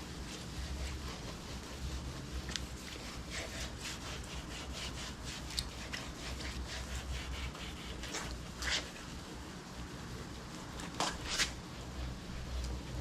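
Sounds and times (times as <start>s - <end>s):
sandpaper rubbing on plastic: 0.2s - 9.1s.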